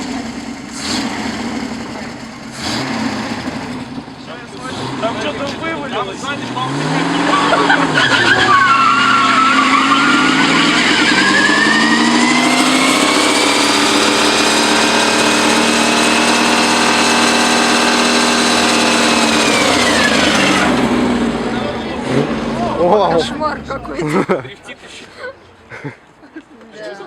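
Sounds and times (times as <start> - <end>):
engine revving: 0.0 - 24.4
tyres squealing: 4.6 - 25.7.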